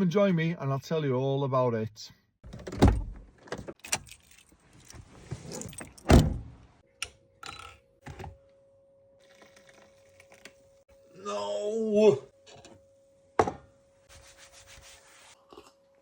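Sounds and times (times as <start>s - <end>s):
car door shutting: 5.7s - 6.5s.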